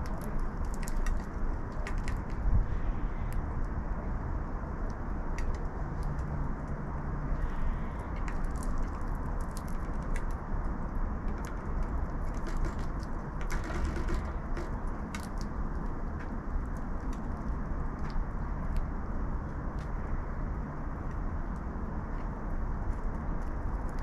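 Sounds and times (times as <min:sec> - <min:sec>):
birds clicking at seed feeder: 0:00.0 - 0:02.4, 0:07.4 - 0:18.8
distant traffic rumble: 0:00.0 - 0:24.0.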